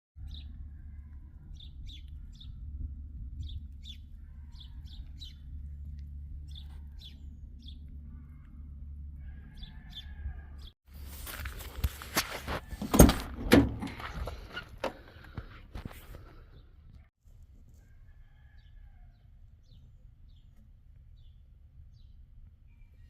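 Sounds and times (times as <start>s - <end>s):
low rumble: 0.2s - 10.8s
songbirds chirping: 0.2s - 17.1s, 17.7s - 23.0s.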